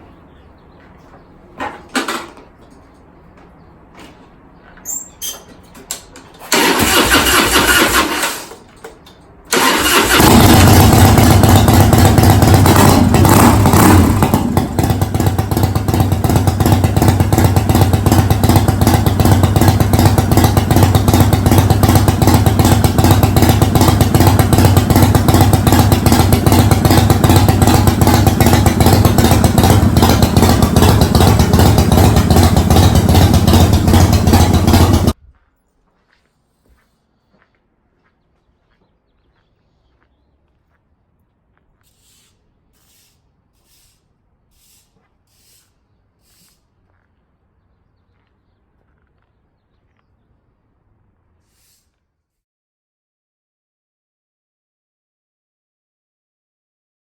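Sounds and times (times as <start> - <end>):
motorcycle engine cranking: 4.8 - 35.2
motorcycle engine revving and idling: 6.5 - 8.6, 9.5 - 35.2.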